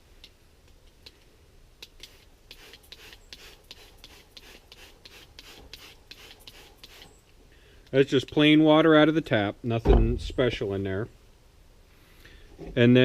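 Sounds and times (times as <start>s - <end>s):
short hissy strokes of water: 1.9s - 7.2s.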